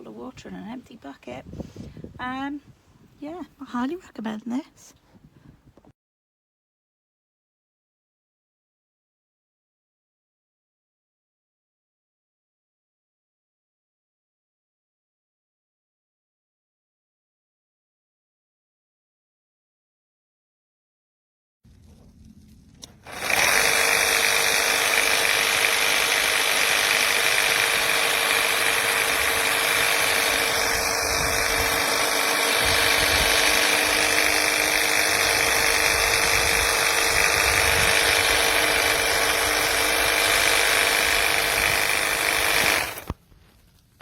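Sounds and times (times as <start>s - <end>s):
pressure washer pump humming: 22.9s - 43.2s.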